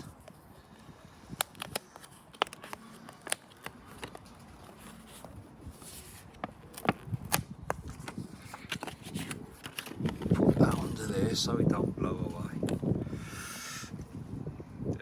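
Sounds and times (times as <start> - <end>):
plastic wrapping crinkling: 1.4 - 10.8.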